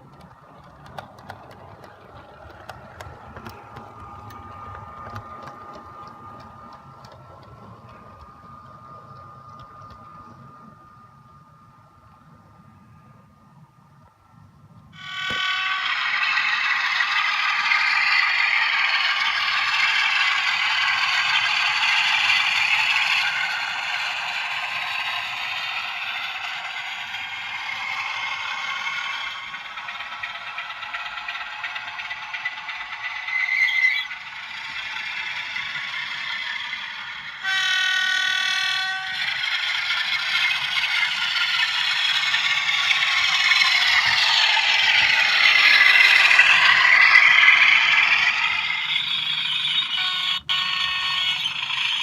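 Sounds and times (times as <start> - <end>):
model train engine sound from speaker: 0.0 - 52.0
model train running noise: 0.0 - 52.0
train horn blast: 37.4 - 39.2.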